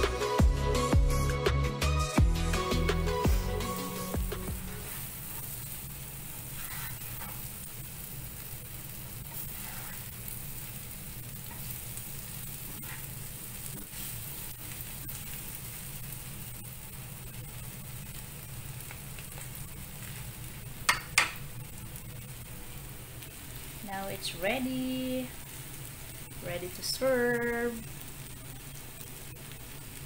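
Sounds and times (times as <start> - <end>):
potatoes sizzling in oil: 2.6 - 30.0
wooden spatula scraping pan: 6.5 - 7.4, 9.3 - 10.2.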